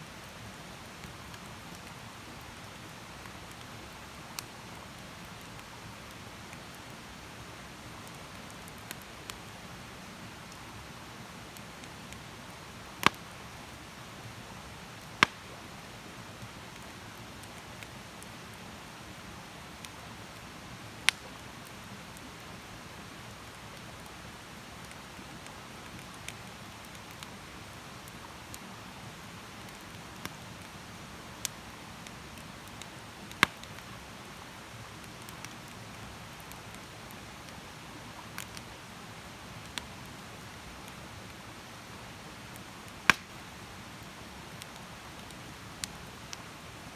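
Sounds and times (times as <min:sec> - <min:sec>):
campfire crackling: 0:00.0 - 0:46.9
sharp fire pops: 0:15.2 - 0:15.4, 0:43.0 - 0:43.4.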